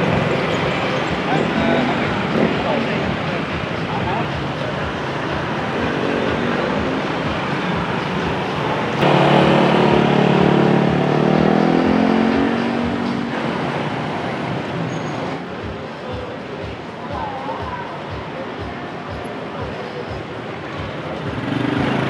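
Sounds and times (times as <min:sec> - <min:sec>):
street traffic: 0:00.0 - 0:22.0
engine passing close by: 0:05.6 - 0:15.5.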